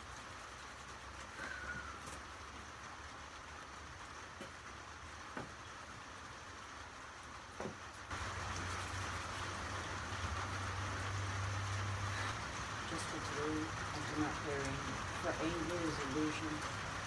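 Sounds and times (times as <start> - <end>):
rain hiss: 0.0 - 17.0.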